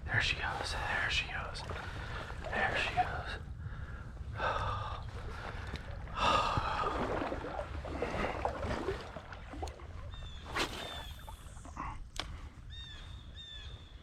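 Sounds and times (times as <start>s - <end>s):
water sloshing: 0.3s - 12.5s
faint high bird chirps: 12.7s - 14.0s.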